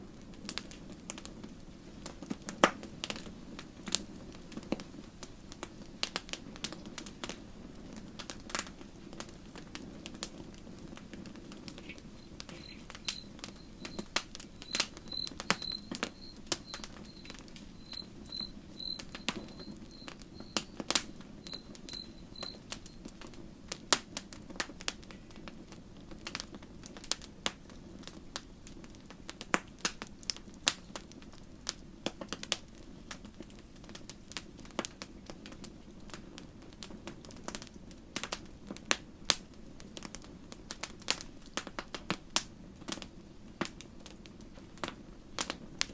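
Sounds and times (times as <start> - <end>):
campfire crackling: 0.0 - 45.9
high pulsed chirping: 11.8 - 23.0.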